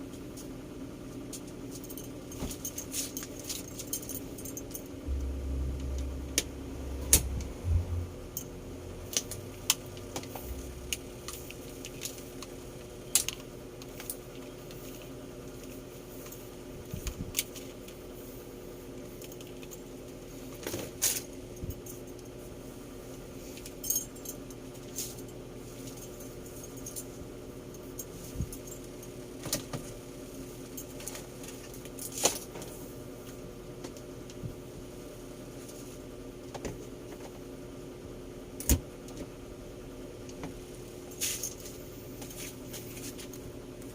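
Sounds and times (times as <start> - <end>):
faint steady hum: 0.0 - 43.9
low rumble: 4.9 - 11.2.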